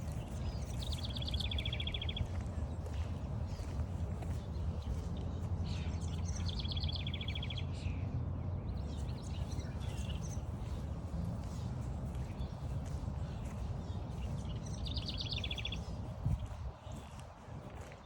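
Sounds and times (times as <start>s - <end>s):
songbirds calling: 0.0s - 18.0s
steady low rumble: 0.0s - 18.0s.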